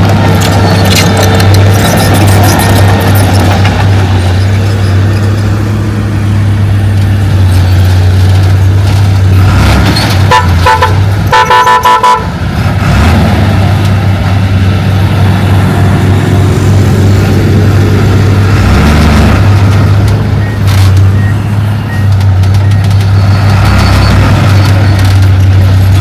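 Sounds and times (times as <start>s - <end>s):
heavy diesel engine running: 0.0s - 26.0s
vehicle horn toots: 10.2s - 12.3s.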